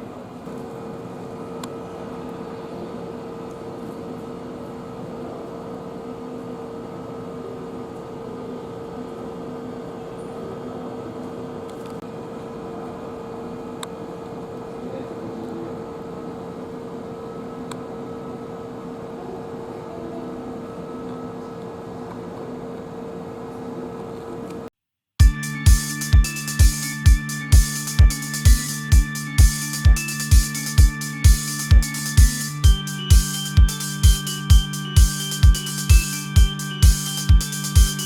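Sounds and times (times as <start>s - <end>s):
electric train equipment hum: 25.2s - 38.0s.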